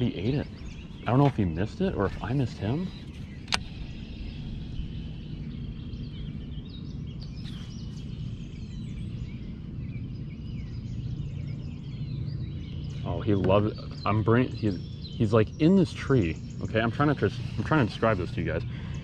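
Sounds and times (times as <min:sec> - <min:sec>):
small birds chirping: 0:00.0 - 0:19.0
steady low rumble: 0:00.0 - 0:19.0
sharp click: 0:03.4 - 0:03.8.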